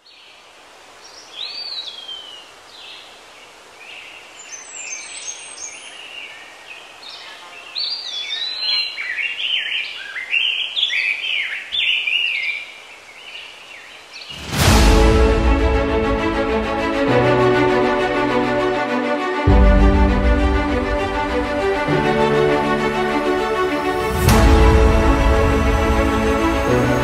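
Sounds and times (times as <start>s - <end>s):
songbirds singing and calling: 0.0s - 14.5s
steady background hiss: 0.0s - 14.6s.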